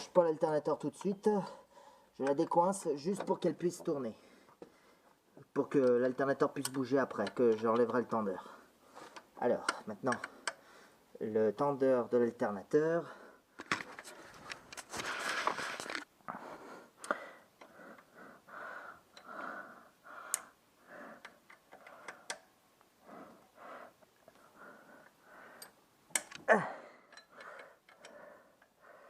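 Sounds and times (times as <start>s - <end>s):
metal clicks and knocks of tools: 0.9s - 1.3s, 2.2s - 3.9s, 5.7s - 8.2s, 9.0s - 10.6s, 21.2s - 22.5s, 25.6s - 28.8s
person breathing heavily: 1.4s - 2.2s, 10.3s - 11.1s, 13.0s - 29.0s.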